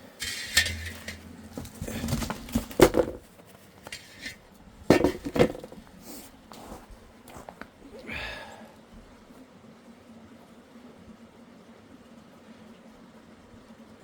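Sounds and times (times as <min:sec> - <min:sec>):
metal cookware clinking: 0:00.1 - 0:03.2, 0:03.9 - 0:05.7.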